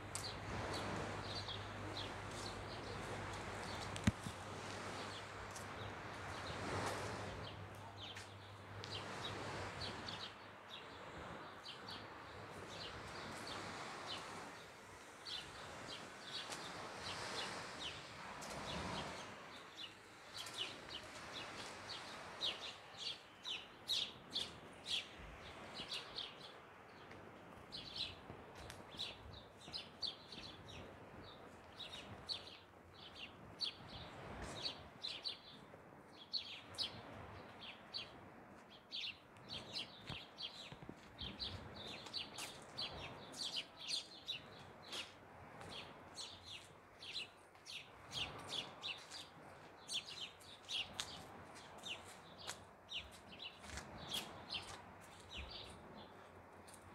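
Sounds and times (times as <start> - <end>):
faint outdoor background noise: 0.0 - 56.9
small birds chirping: 0.1 - 12.0, 27.7 - 56.9.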